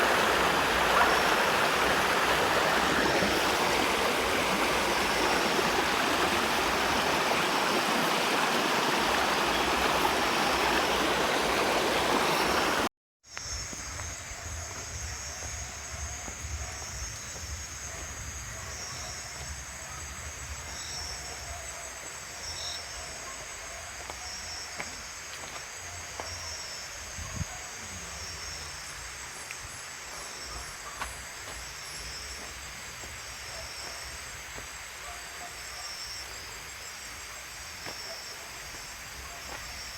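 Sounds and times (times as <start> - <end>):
rushing stream water: 0.0 - 12.9, 28.0 - 39.9
insects chirring: 0.0 - 26.9.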